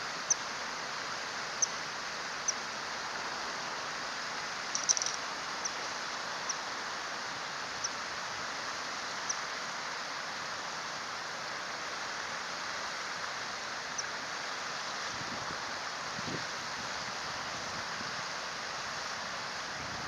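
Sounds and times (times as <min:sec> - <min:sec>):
stream rushing: 0:00.0 - 0:20.0.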